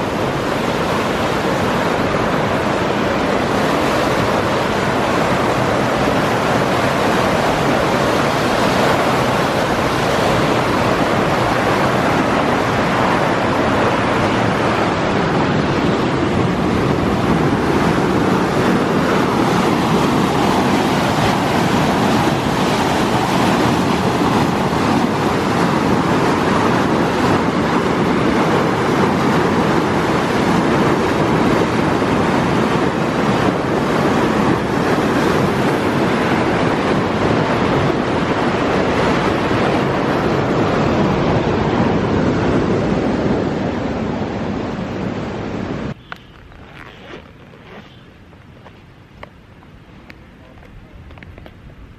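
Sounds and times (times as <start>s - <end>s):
wind rushing over microphone: 0.0s - 51.9s.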